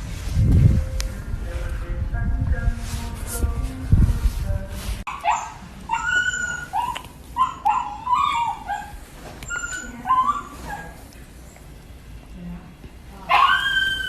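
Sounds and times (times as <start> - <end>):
young animal high-pitched cries: 5.1 - 11.0, 13.3 - 14.0.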